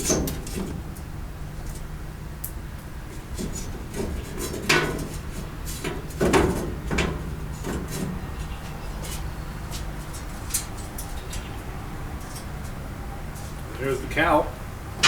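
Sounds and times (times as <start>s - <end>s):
knocks and scrapes on sheet metal: 0.0s - 0.9s, 3.2s - 11.5s.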